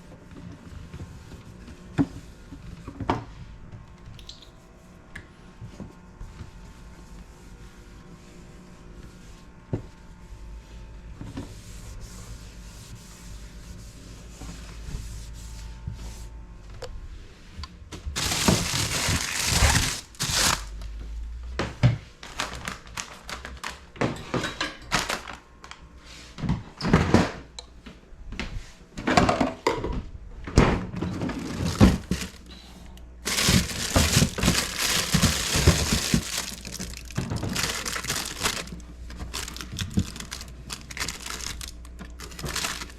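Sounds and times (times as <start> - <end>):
plastic crinkling: 18.2 - 20.9, 22.2 - 23.8, 31.3 - 32.5, 33.2 - 42.9
knocks of items being moved: 30.6 - 32.5, 33.2 - 42.9.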